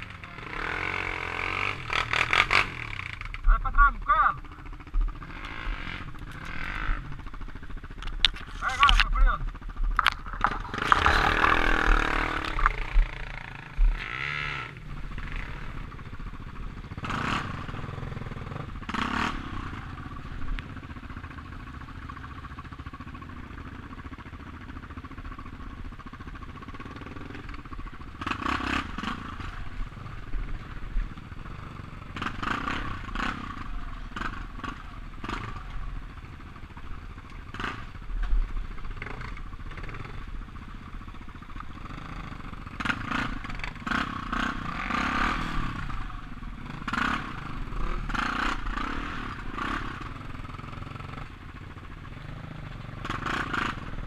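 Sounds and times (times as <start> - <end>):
motorcycle engine running: 0.0 - 54.0
knocks and rattles: 9.8 - 13.1.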